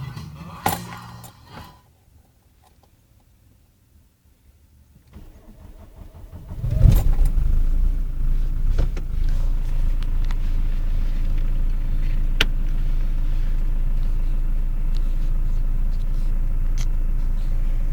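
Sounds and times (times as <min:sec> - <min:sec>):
diesel engine starting and idling: 0:05.1 - 0:17.9.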